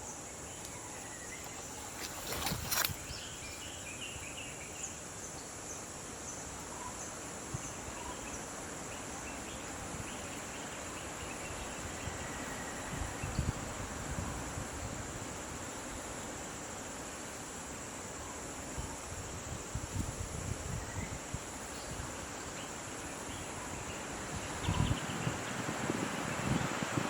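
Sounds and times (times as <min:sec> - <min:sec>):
faint bird chirps: 0:00.0 - 0:13.6
insects droning: 0:00.0 - 0:27.0.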